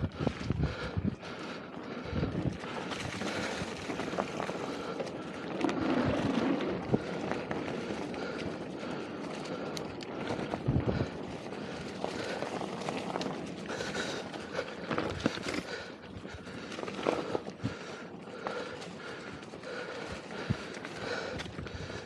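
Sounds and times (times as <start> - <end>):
bike rattling over ground: 0.0 - 22.0
tyre and wind noise: 0.0 - 22.0.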